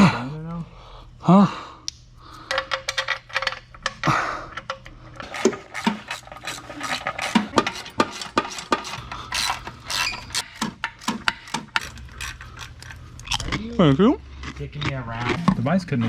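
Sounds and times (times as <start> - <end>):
metallic clicks and scrapes of tools: 2.3 - 13.5.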